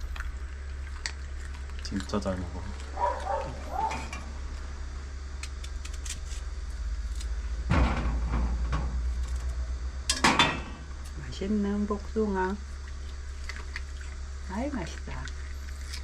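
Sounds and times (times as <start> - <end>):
dog chewing food: 0.0 - 4.7, 12.7 - 16.0
steady low hum: 0.0 - 16.0.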